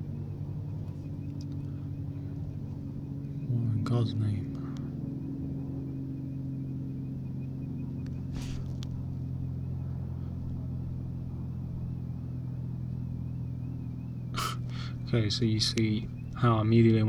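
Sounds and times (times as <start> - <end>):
vehicle engine humming: 0.0 - 17.0
brief hiss: 8.3 - 8.8.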